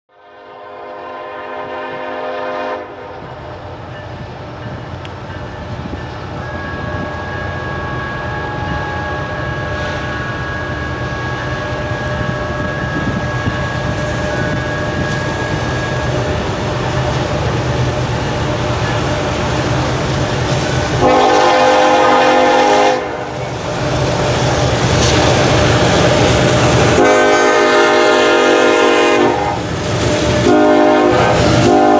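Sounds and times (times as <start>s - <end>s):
locomotive air horn chord: 0.1s - 3.2s, 20.9s - 23.3s, 26.8s - 29.6s, 30.3s - 31.9s
locomotive rumble: 1.2s - 31.9s.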